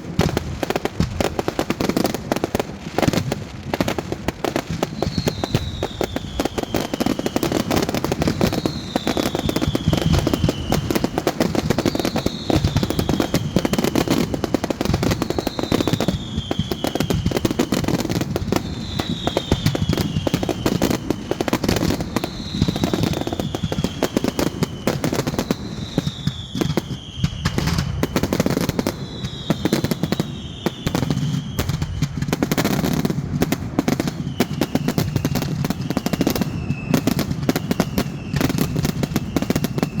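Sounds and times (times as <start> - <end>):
fireworks bangs and crackles: 0.0 - 40.0
high falling whistle: 5.0 - 7.7, 18.7 - 32.0.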